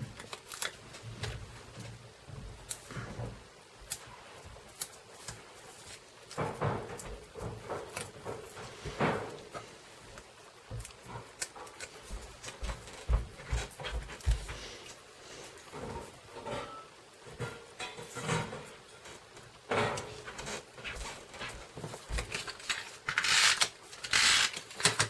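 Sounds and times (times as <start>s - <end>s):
paper rustling: 20.0s - 25.0s.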